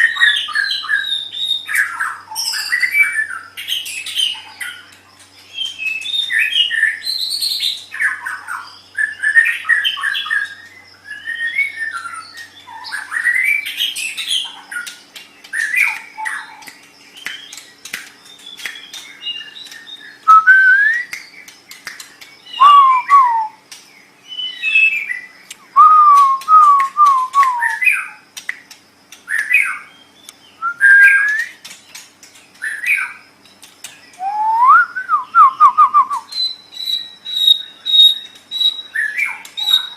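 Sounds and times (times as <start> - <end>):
songbird singing varied whistles: 15.5 - 23.6, 24.2 - 28.6, 29.3 - 31.7, 34.1 - 39.9.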